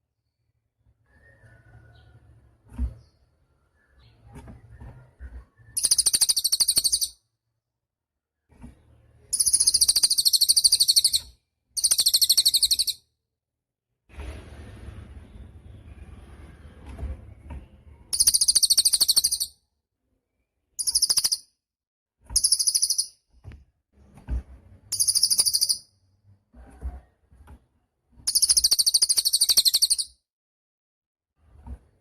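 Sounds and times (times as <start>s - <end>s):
songbird fast high trilling: 5.8s - 7.1s, 9.4s - 13.0s, 18.2s - 19.5s, 20.8s - 21.4s, 22.4s - 23.1s, 24.9s - 25.8s, 28.3s - 30.1s.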